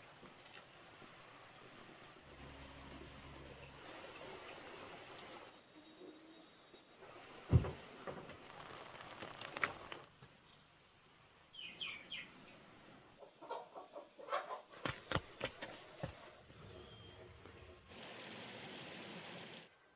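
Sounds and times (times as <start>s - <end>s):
chickens clucking: 13.2s - 16.4s.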